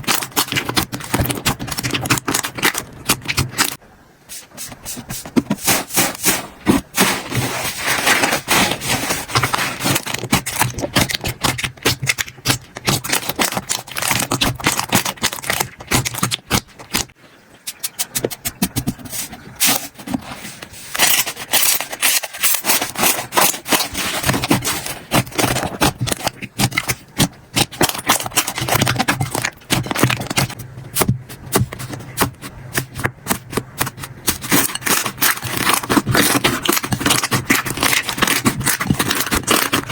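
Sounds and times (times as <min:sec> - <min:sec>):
slime crackling and popping: 0:09.4 - 0:17.1, 0:21.1 - 0:30.6, 0:32.8 - 0:39.9.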